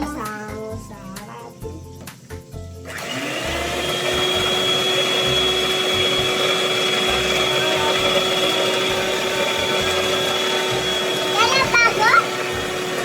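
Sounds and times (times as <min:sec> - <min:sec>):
electric mixer whining: 0:02.8 - 0:13.0.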